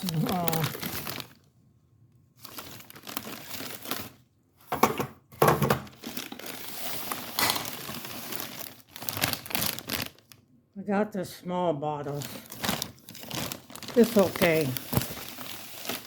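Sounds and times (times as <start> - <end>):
plastic crinkling: 0.0 - 1.5, 2.2 - 4.8, 5.8 - 10.5, 12.0 - 16.0.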